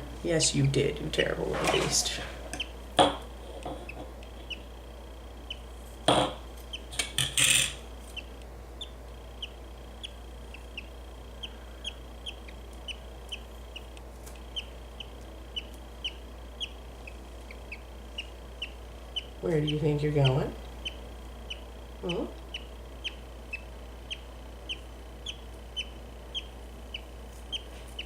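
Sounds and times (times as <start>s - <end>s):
handling knocks and rustles: 1.4s - 2.2s
budgie chick cheeping: 2.5s - 2.8s, 3.6s - 5.8s, 6.4s - 28.0s.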